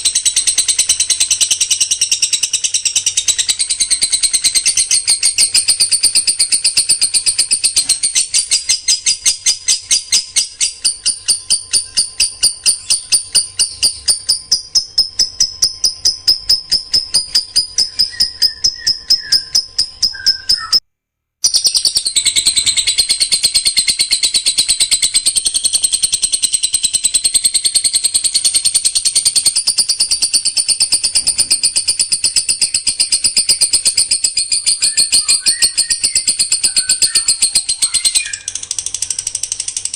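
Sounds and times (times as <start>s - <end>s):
songbird repeating high notes: 1.6s - 20.8s, 34.5s - 38.6s.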